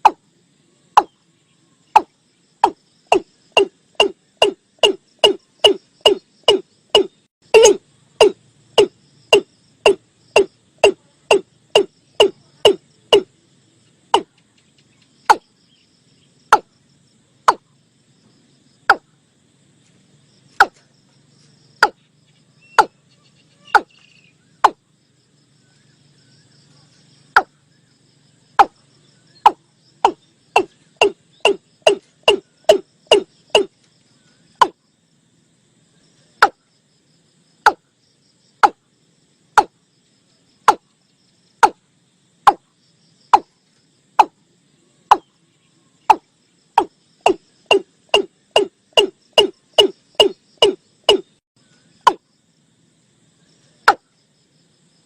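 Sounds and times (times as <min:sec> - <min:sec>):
bird knocking kok calls: 0:02.0 - 0:13.3, 0:22.7 - 0:23.0, 0:23.7 - 0:24.0, 0:29.4 - 0:33.7, 0:46.1 - 0:51.3.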